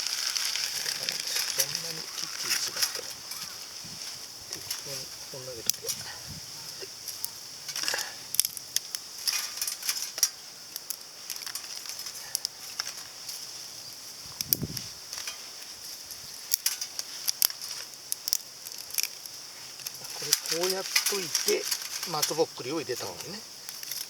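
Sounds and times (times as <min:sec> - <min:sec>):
steady high hiss: 0:00.0 - 0:24.0
twigs snapping and rustling: 0:00.0 - 0:24.0.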